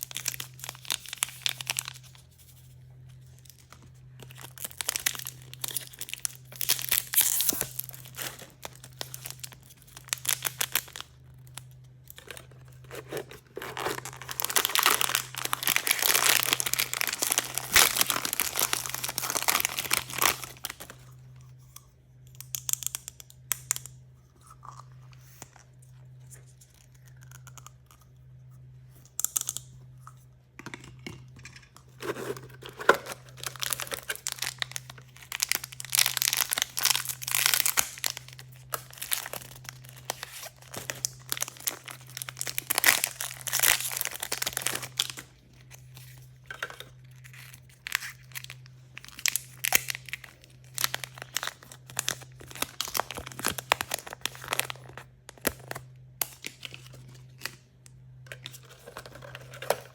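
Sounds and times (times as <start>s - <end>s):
packaging tearing and crinkling: 0.0s - 2.2s, 3.4s - 21.0s, 32.0s - 57.6s.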